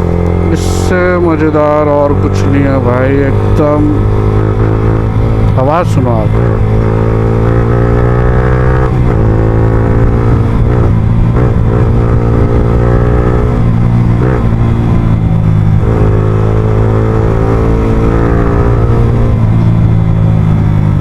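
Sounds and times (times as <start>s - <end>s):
motorcycle engine while riding: 0.0s - 21.0s.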